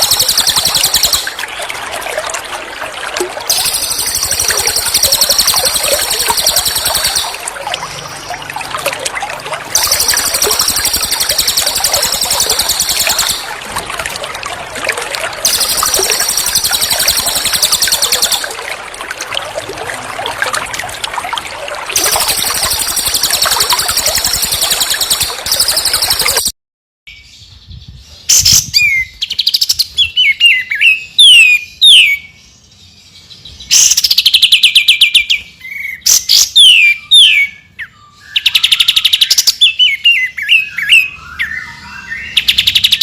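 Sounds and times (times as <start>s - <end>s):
songbird high rapid trill: 0.0s - 1.4s, 3.5s - 7.6s, 9.7s - 13.6s, 15.4s - 18.6s, 22.0s - 26.5s
trickling water: 0.0s - 26.5s, 38.3s - 43.0s.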